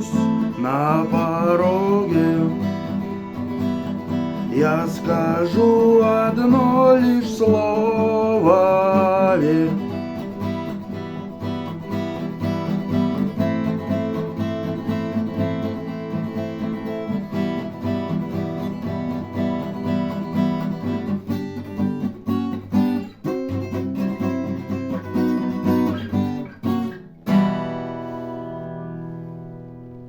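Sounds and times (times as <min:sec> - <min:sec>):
acoustic guitar strumming: 0:00.0 - 0:30.0.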